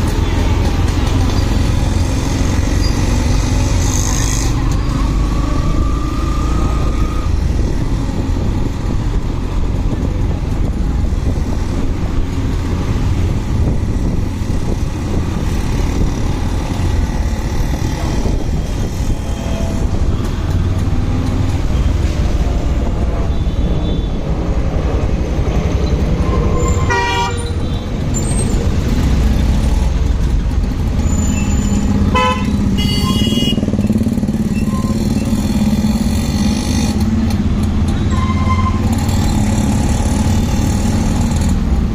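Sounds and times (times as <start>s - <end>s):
motorcycle engine and wind noise: 0.0s - 26.5s, 27.6s - 38.0s
vehicle horn tooting: 26.7s - 27.5s, 32.1s - 33.7s.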